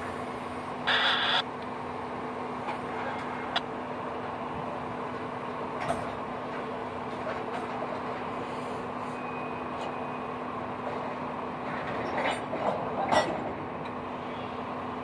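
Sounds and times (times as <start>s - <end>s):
train wheels rumbling on rails: 0.0s - 15.0s
loud screech: 0.9s - 1.4s.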